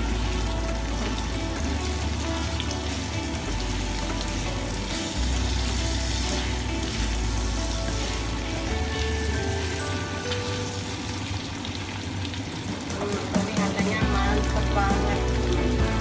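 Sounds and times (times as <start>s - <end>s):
spatula turning food: 0.0s - 10.8s
background music with bass: 0.0s - 11.4s, 13.3s - 16.0s
meat sizzling in a frying pan: 0.0s - 16.0s.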